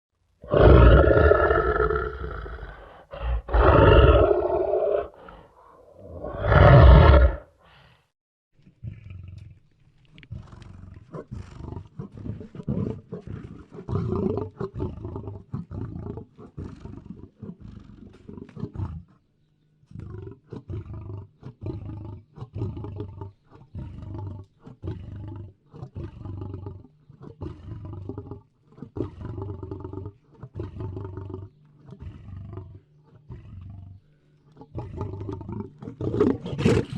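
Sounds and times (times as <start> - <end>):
lion roaring: 0.4 - 7.5, 23.8 - 36.9
lion grunting calls: 0.4 - 7.6, 28.8 - 36.9.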